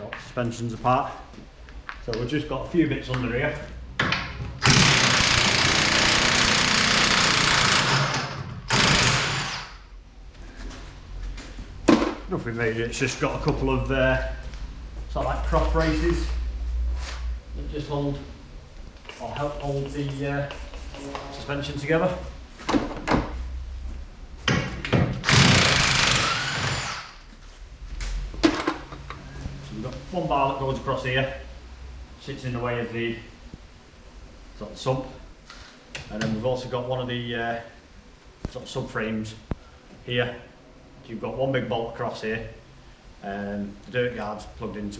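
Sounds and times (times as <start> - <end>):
impact wrench hammering: 4.0 - 9.8.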